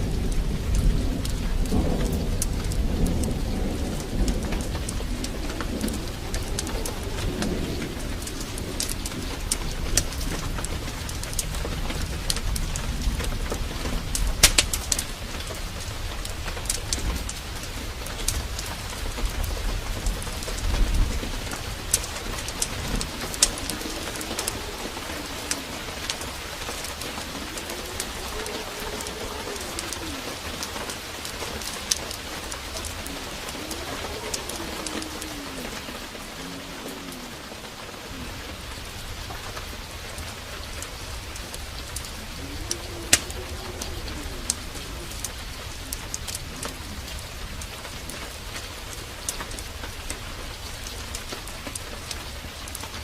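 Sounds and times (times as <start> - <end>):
heavy rain: 0.0 - 53.0
low thunder rumble: 0.0 - 53.0
sharp ticks: 13.5 - 15.1.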